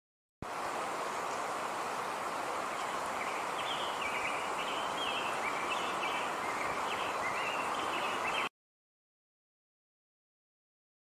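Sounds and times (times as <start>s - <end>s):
outdoor background noise: 0.4s - 8.5s.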